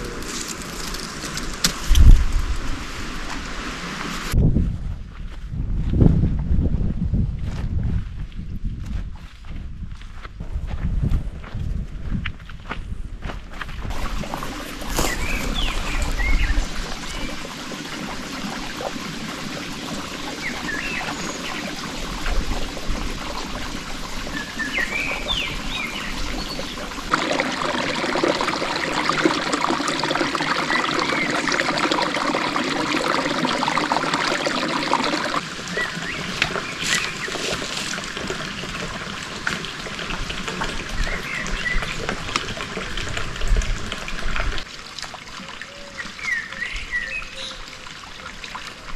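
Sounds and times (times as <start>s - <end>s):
louder rushing water: 0.0s - 4.4s, 13.9s - 44.9s
water trickling: 13.9s - 48.9s.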